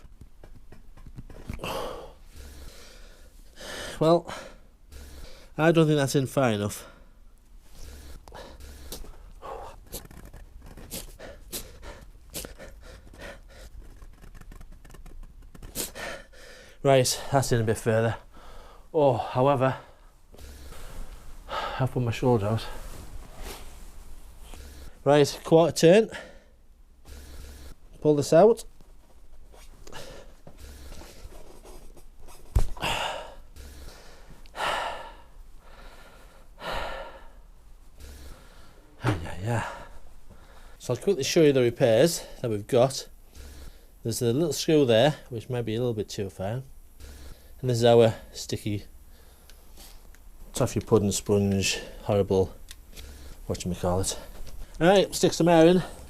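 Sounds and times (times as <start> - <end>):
man breathing hard: 1.5 - 5.6, 6.7 - 10.2, 10.9 - 14.0, 15.7 - 17.4, 18.2 - 18.9, 19.8 - 21.9, 26.1 - 27.9, 29.8 - 31.5, 32.6 - 40.8, 43.3 - 44.0, 47.0 - 47.6, 49.0 - 50.0, 52.9 - 53.5
man breathing out hard: 1.6 - 5.6, 32.7 - 39.0.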